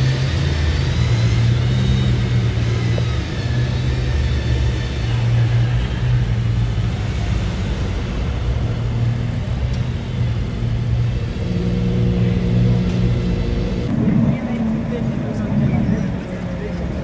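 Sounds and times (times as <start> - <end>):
car engine low drone: 0.0 - 17.0.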